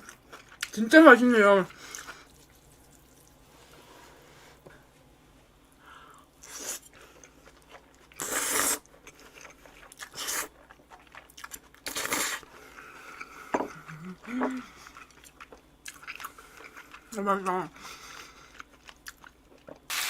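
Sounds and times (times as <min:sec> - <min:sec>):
crunching and chewing food: 0:00.0 - 0:00.8, 0:06.4 - 0:20.0.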